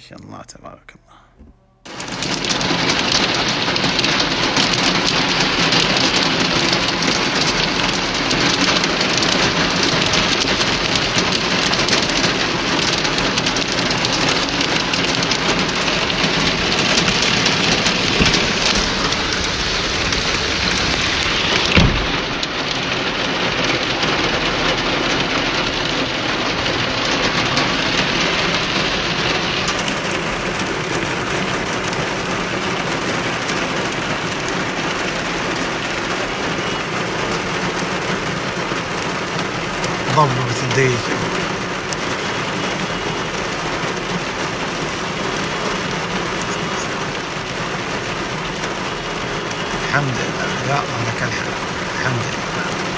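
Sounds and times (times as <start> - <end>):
sudden thump: 1.3 - 1.6, 17.9 - 22.4
heavy rain pouring: 1.9 - 52.9.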